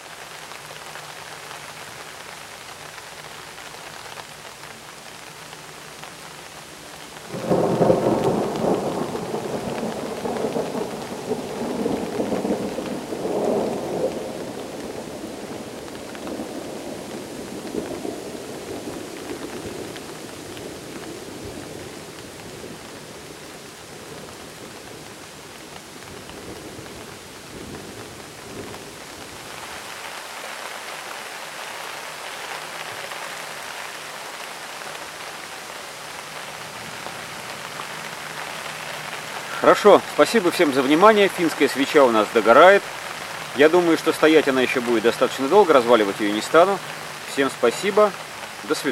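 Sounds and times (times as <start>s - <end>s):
steady rain: 0.0s - 48.9s
rumble of thunder: 7.3s - 20.0s.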